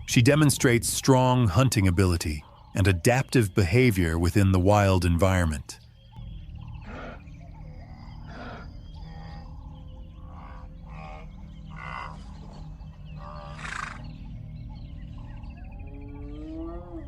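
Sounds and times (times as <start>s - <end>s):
leopard growling: 6.6s - 14.2s.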